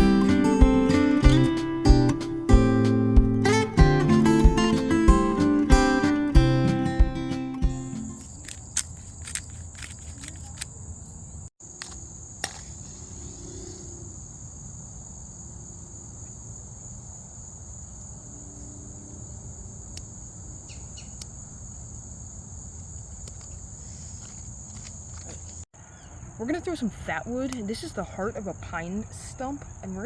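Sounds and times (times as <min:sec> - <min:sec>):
crickets chirping: 0:07.8 - 0:30.0
sharp clicks: 0:08.1 - 0:12.8.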